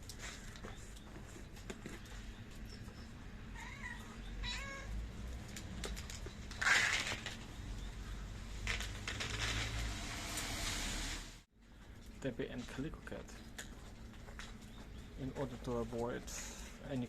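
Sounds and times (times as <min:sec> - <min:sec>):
cat meowing: 0:03.5 - 0:05.0.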